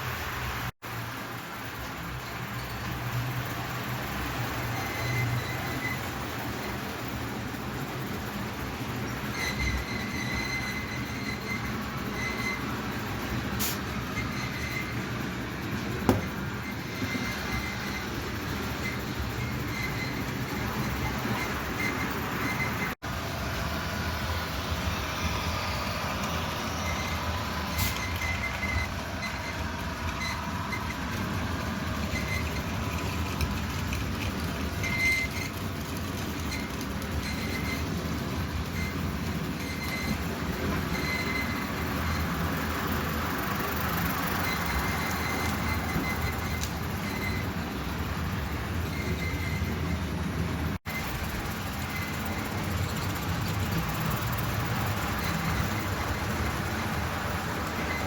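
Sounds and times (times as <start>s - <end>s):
model train wheels rumbling on track: 0.0s - 58.0s.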